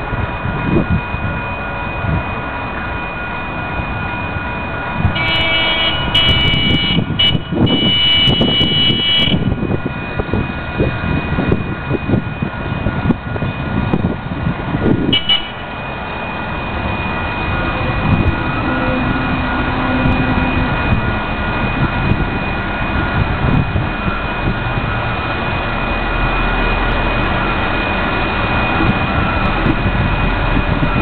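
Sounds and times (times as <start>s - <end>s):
passing train rumble: 0.0s - 31.0s
steady high tone: 0.0s - 31.0s
train horn: 5.1s - 9.6s, 15.1s - 15.8s, 17.6s - 21.4s.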